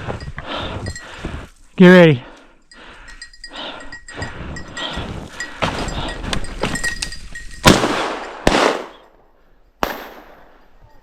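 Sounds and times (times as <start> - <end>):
shotgun blasts: 7.6 - 9.0, 9.8 - 10.5.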